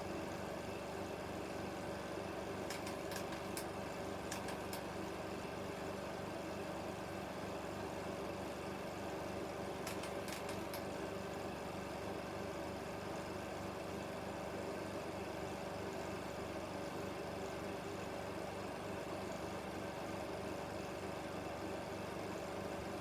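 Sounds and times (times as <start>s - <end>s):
film projector whirring: 0.0s - 14.6s.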